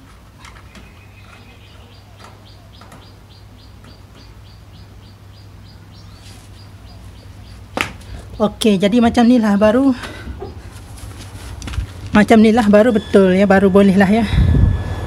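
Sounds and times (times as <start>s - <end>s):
small bird chirping: 0.4s - 10.6s.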